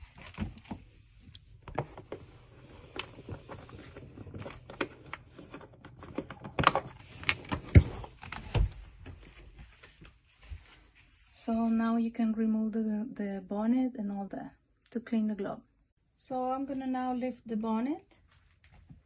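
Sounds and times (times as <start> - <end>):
plastic parts clicking and knocking: 0.0 - 2.3, 2.9 - 8.8.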